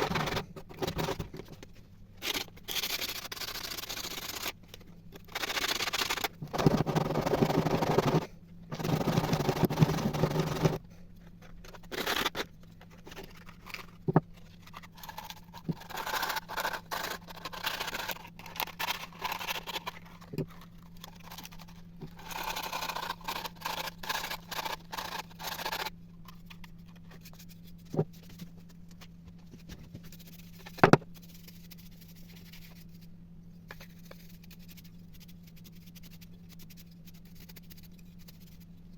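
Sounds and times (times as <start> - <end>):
steady low hum: 0.0 - 38.9
hand scraping metal parts: 5.1 - 28.4.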